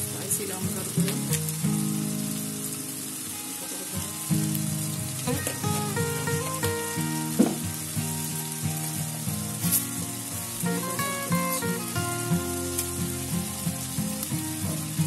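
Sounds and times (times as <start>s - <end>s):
background music with simple melody: 0.0s - 15.0s
onions sizzling in hot oil: 0.0s - 15.0s.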